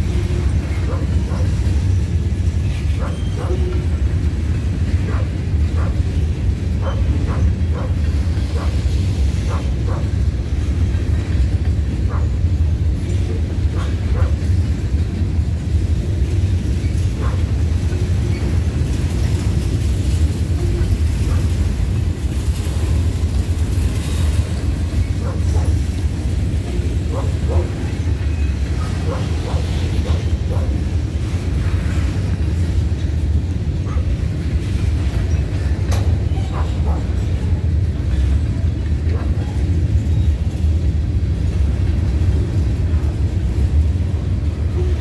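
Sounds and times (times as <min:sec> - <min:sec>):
freight train wheels rumbling: 0:00.0 - 0:45.0
sharp clicks and squeaks: 0:35.2 - 0:36.8.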